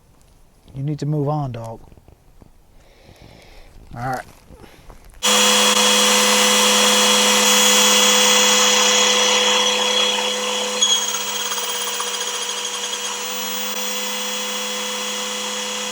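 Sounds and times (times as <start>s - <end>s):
small electric motor whirring: 5.2s - 15.9s.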